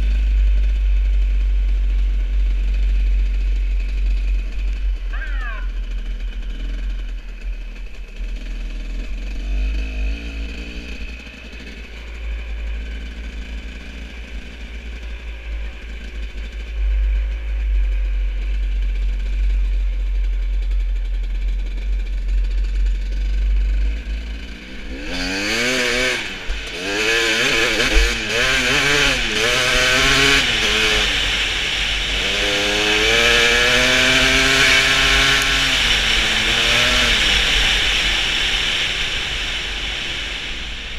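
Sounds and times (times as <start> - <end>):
deep rumble: 0.0 - 27.2
motorcycle engine revving: 0.0 - 40.9.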